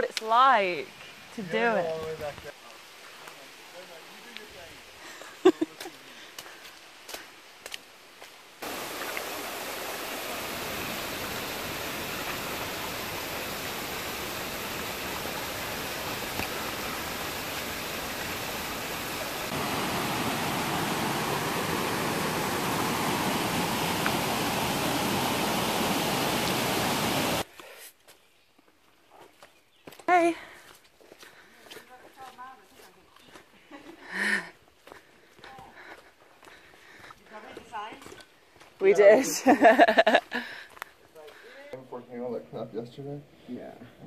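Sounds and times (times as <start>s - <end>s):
running water rushing: 8.6s - 27.5s.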